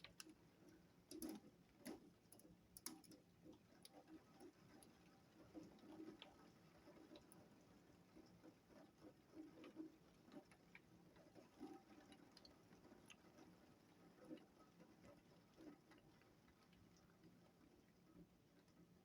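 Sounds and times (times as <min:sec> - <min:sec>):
faint ticks and taps: 0:00.0 - 0:07.5.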